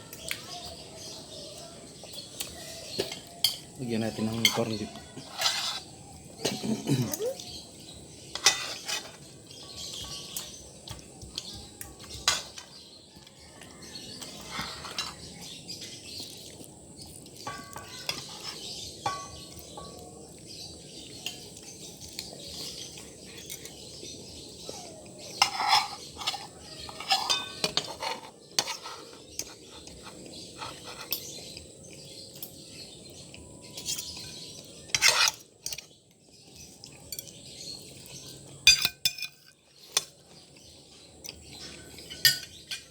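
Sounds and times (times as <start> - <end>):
cutlery clinking on a plate: 2.1 - 7.0, 8.3 - 16.0, 17.4 - 20.1, 25.2 - 31.6, 33.8 - 36.0, 36.9 - 40.1, 41.4 - 42.9.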